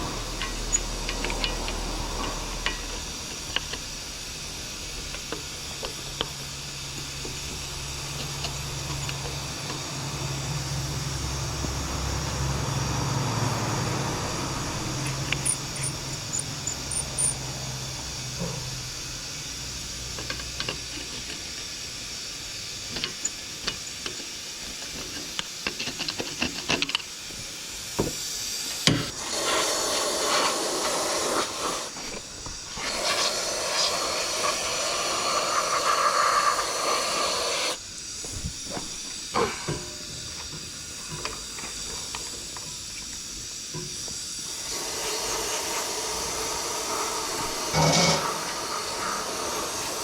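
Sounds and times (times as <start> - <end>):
aerosol cleaner spraying: 0.0 - 18.2, 27.4 - 39.4, 40.5 - 50.0
metallic clicks of tools: 15.0 - 17.4.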